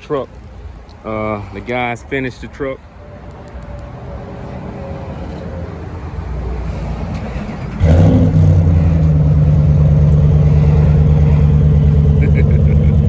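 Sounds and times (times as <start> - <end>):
pickup engine starting and idling: 7.1 - 13.0.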